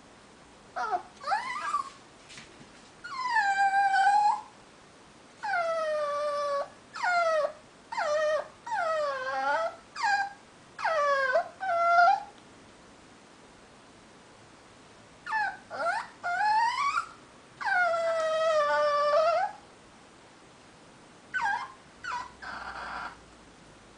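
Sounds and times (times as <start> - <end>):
dog whining and howling: 0.8 - 2.0, 3.0 - 4.6, 5.4 - 12.4, 15.2 - 19.6, 21.3 - 23.2.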